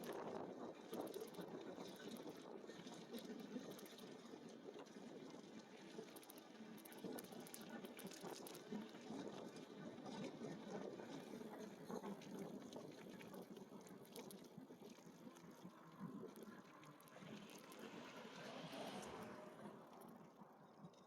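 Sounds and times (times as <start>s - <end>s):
light ticks: 6.1s - 8.7s.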